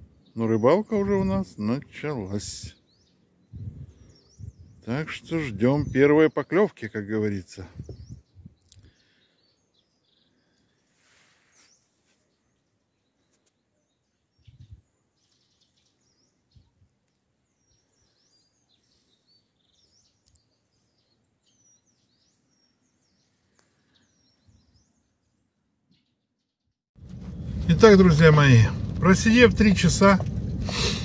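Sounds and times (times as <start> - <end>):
faint bird chirps: 2.6 - 6.6, 7.5 - 26.8.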